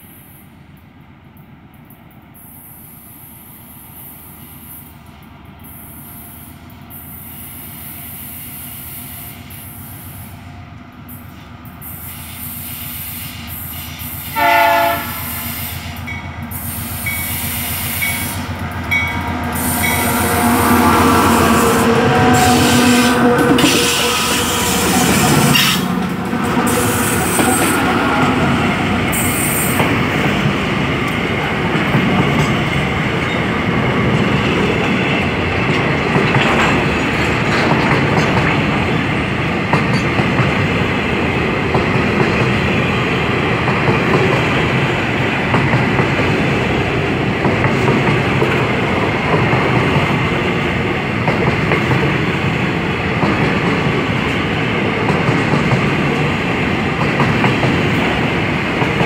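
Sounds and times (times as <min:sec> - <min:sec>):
freight train wheels rumbling: 0:00.0 - 0:59.0
clickety-clack over rail joints: 0:21.6 - 0:59.0.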